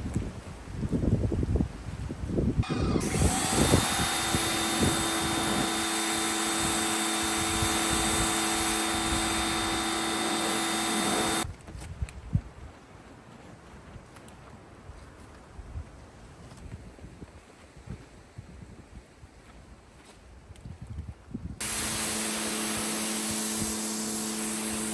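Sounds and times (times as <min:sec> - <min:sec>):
power tool motor whining: 0:02.6 - 0:11.5, 0:21.6 - 0:24.9.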